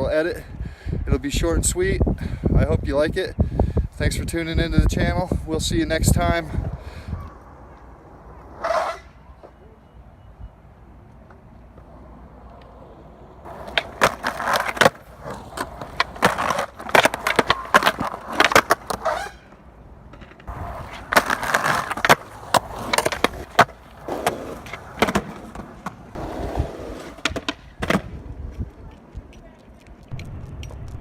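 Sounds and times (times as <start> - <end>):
skateboard rolling: 4.8 - 9.8, 10.7 - 31.0
skateboard clacks and impacts: 13.4 - 19.4, 20.1 - 29.4.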